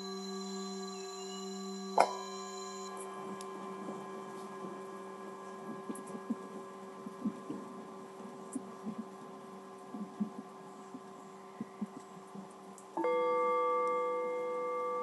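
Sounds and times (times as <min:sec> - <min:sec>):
singing bowl ringing: 0:00.0 - 0:07.0, 0:13.0 - 0:15.0.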